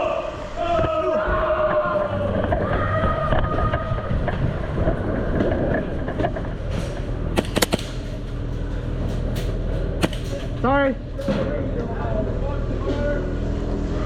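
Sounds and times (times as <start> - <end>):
low rumble of movement: 1.6 - 12.8
airsoft gun shots: 7.4 - 8.3, 10.0 - 10.6.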